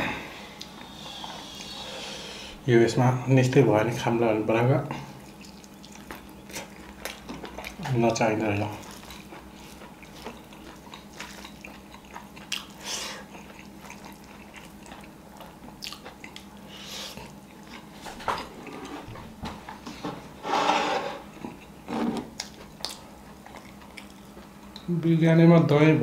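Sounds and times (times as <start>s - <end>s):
chewing and lip smacks: 5.1s - 18.8s, 21.3s - 24.9s.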